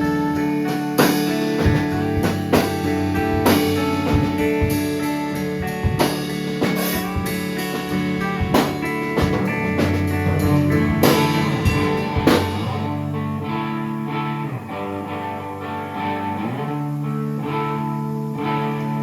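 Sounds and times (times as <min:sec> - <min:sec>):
electric guitar notes ringing: 0:00.0 - 0:19.0
drum and cymbal hits: 0:00.3 - 0:13.1.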